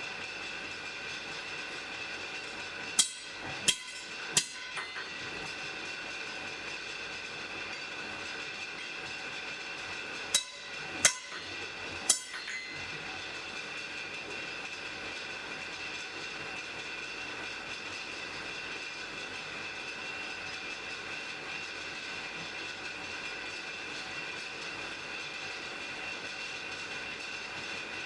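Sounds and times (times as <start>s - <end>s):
hammer ringing on anvil: 3.0s - 5.6s, 10.3s - 13.6s.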